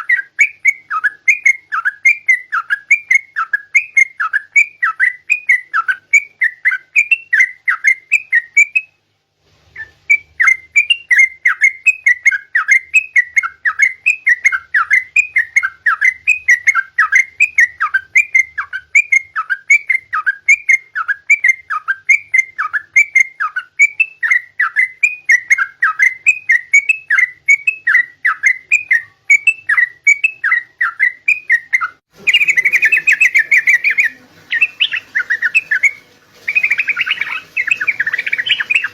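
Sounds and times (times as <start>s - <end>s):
bulbul singing whistled notes: 0.0s - 9.0s, 9.8s - 38.9s
scratchy bird chatter: 29.7s - 38.9s.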